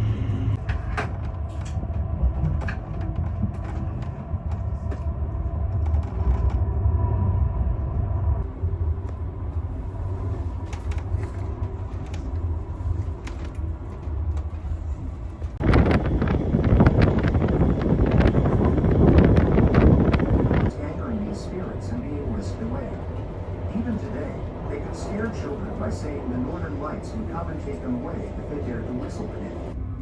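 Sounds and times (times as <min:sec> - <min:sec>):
train rumbling on rails: 0:00.0 - 0:30.0
wind on microphone: 0:15.0 - 0:20.7.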